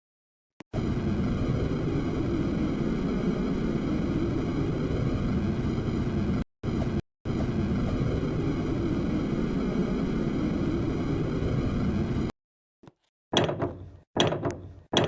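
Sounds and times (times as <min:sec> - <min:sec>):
jet engines rumbling: 0:00.8 - 0:12.3.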